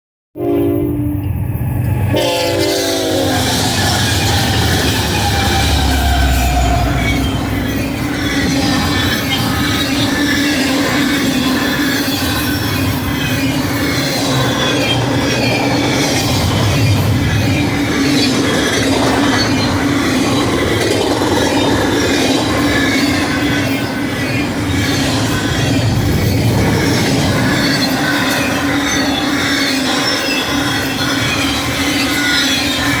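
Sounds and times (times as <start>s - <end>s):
train horn: 0.4s - 1.3s, 2.1s - 7.7s
wheels rushing on rail: 0.4s - 33.0s
wheels squealing: 0.6s - 33.0s
diesel locomotive rumble: 0.8s - 32.0s.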